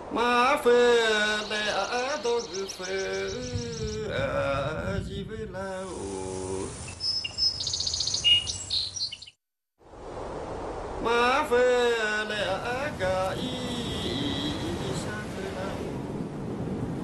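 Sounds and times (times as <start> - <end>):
steady hiss: 5.7 - 7.2
high bird chirps and whistles: 6.9 - 9.4.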